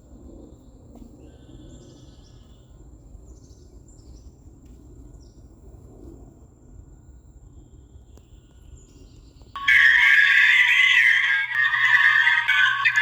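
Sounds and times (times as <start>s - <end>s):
faint high whine: 9.6s - 13.0s
high bird chirps: 9.6s - 13.0s.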